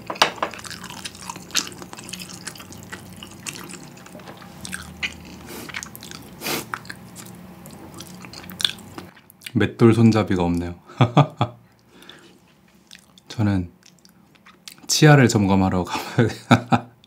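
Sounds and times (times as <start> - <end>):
faint steady hum: 0.0 - 17.0
chewing with lip clicks: 0.5 - 9.6, 11.8 - 14.9.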